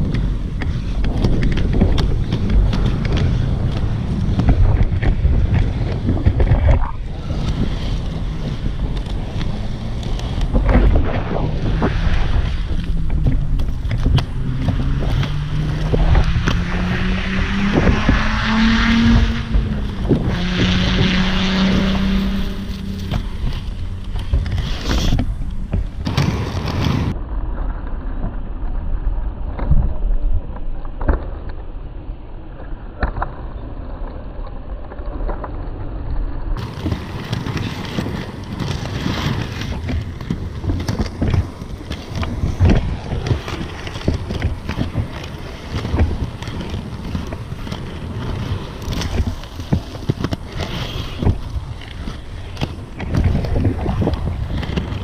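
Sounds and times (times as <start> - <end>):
skate wheels rolling on pavement: 0.0 - 55.0
wind buffeting microphone: 0.0 - 55.0.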